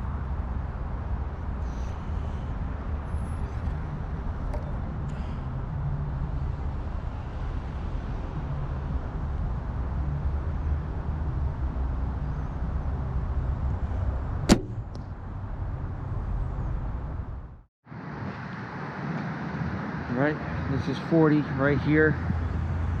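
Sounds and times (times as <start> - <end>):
steady low rumble: 0.0 - 17.7
bow shot snap: 14.5 - 15.1.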